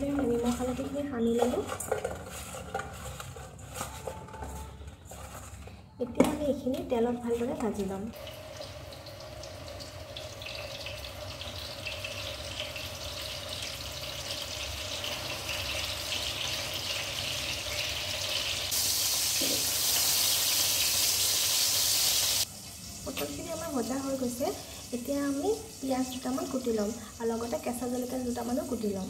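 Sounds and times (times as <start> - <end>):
vegetables sizzling in hot oil: 8.2 - 29.0.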